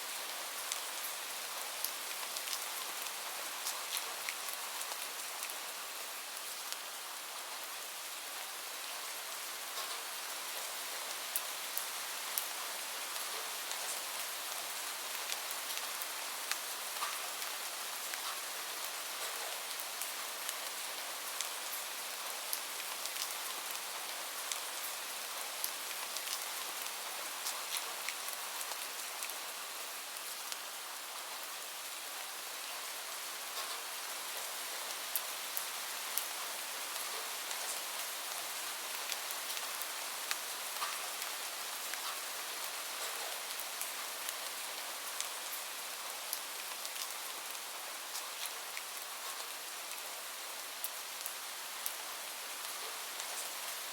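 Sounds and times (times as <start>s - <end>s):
steady rain hiss: 0.0s - 53.9s.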